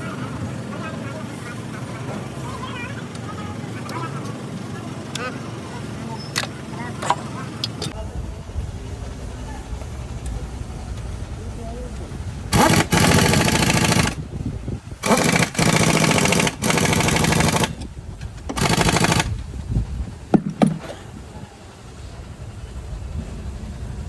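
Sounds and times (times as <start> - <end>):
pneumatic impact tool rattling: 6.2 - 8.0, 12.5 - 14.2, 15.0 - 19.6, 20.3 - 21.2.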